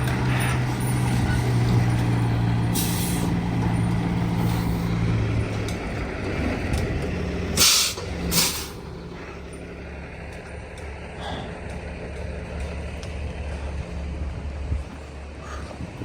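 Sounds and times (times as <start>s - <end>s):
truck engine idling: 0.0s - 16.0s
air brake hisses: 2.8s - 3.3s, 7.6s - 8.8s.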